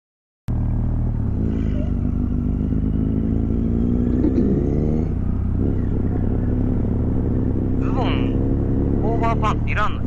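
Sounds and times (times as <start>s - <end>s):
motorcycle engine running: 0.5s - 10.0s.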